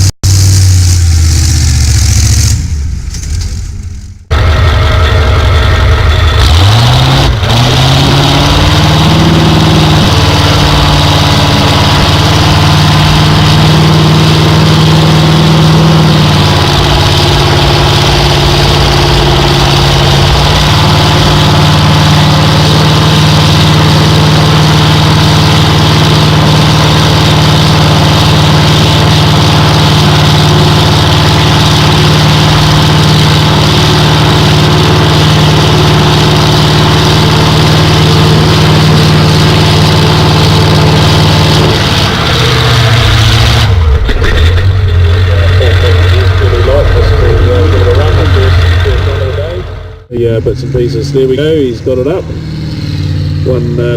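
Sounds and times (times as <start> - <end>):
tractor engine revving loudly: 0.0 - 53.9.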